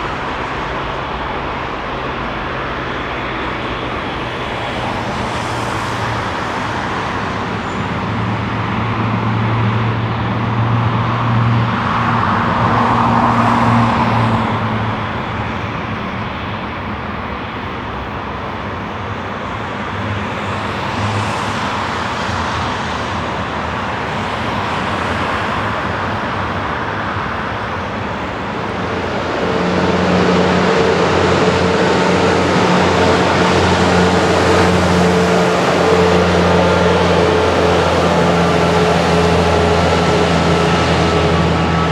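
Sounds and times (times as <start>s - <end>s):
jet engines humming: 0.0s - 41.9s
jet engine humming tones: 27.0s - 41.9s.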